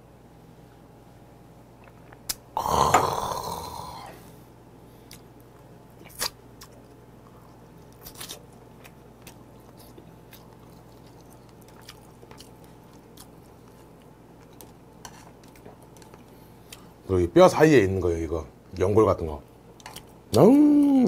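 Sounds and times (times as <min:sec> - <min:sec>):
low steady hum: 0:00.0 - 0:21.0
man chewing meat off bone: 0:06.0 - 0:16.9.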